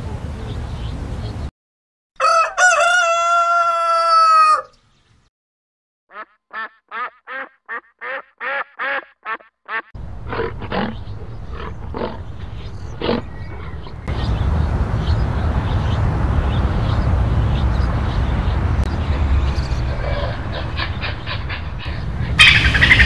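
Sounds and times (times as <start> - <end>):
rooster crowing: 2.2 - 4.8.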